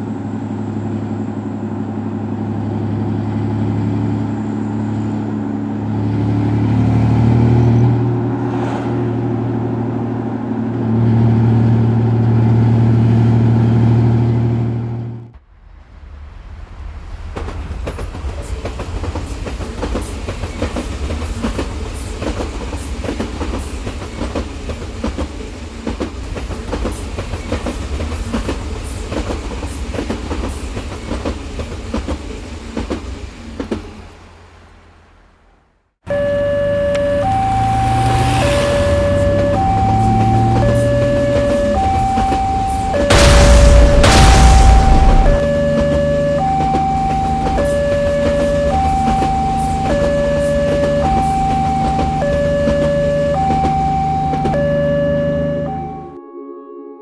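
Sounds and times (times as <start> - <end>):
train wheels clacking: 17.0 - 34.1, 45.4 - 55.3.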